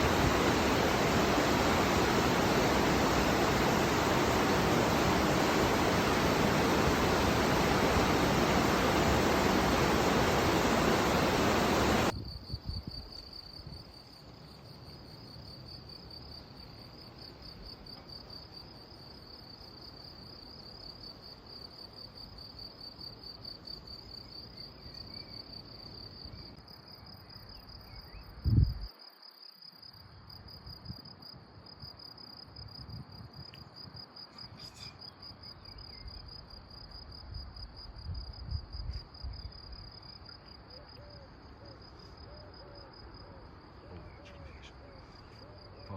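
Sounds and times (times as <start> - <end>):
rushing river water: 0.0 - 12.1
crickets chirping: 0.0 - 45.9.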